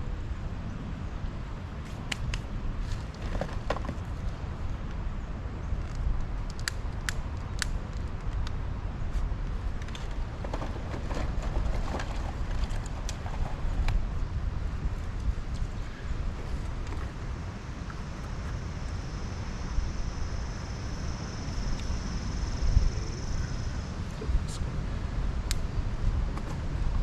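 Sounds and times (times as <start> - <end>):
wind buffeting microphone: 0.0 - 20.3
sharp clicks and snaps: 2.0 - 2.5, 5.8 - 8.6.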